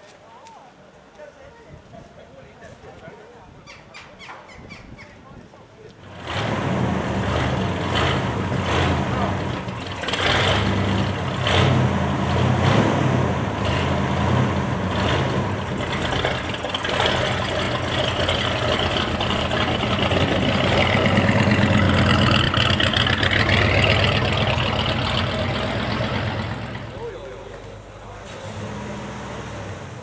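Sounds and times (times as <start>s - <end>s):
car engine running loudly: 6.1s - 28.1s.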